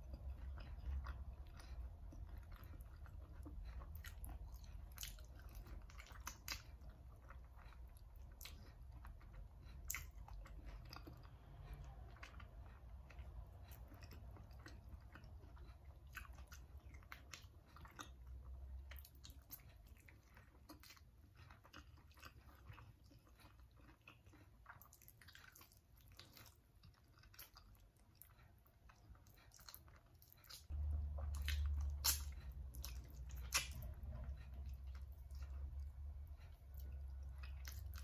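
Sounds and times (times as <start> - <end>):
wet chewing and biting: 0.0 - 38.0
low rumble: 30.7 - 38.0.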